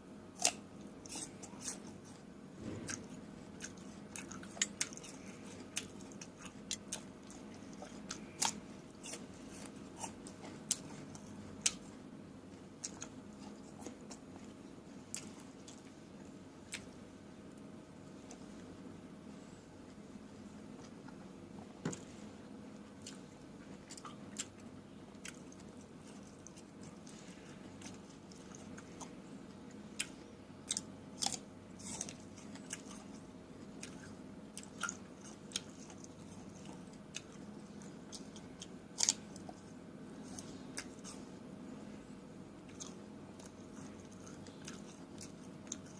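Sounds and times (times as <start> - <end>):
wet chewing clicks: 2.8 - 11.9, 12.8 - 16.0, 22.9 - 41.3, 42.6 - 45.9.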